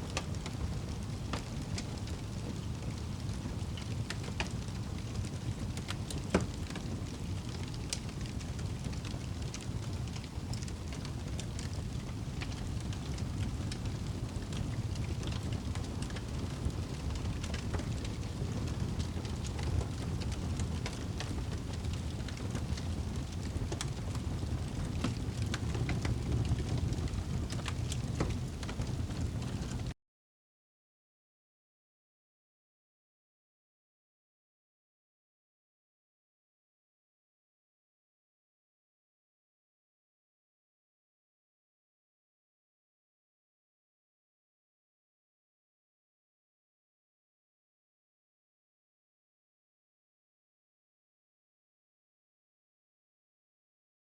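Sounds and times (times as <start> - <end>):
fire crackling in a fireplace: 0.0 - 30.0.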